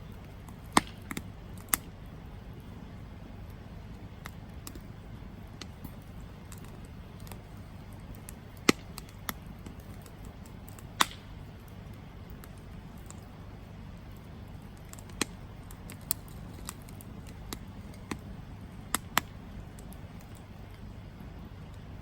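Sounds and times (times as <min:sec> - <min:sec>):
campfire crackling: 0:00.0 - 0:22.0
low steady rumble: 0:00.0 - 0:22.0.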